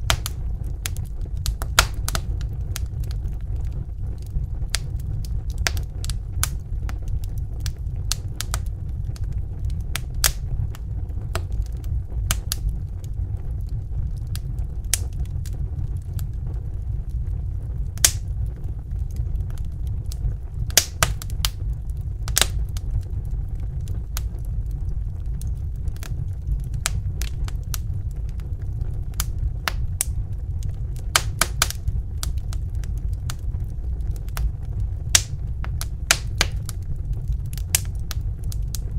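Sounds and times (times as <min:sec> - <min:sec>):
low rumble of flames: 0:00.0 - 0:38.9
wood fire crackling: 0:00.0 - 0:38.9.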